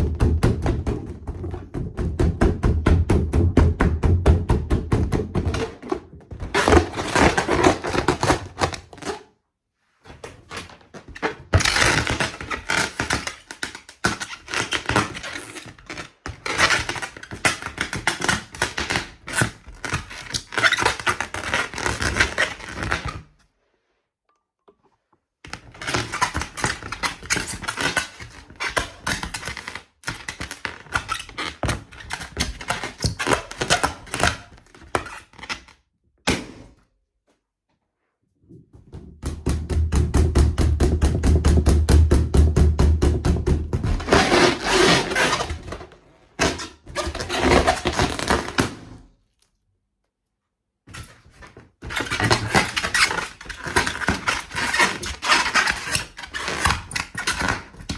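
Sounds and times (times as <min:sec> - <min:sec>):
balloon tapping and crinkling: 0:00.0 - 0:09.2, 0:38.8 - 0:48.8.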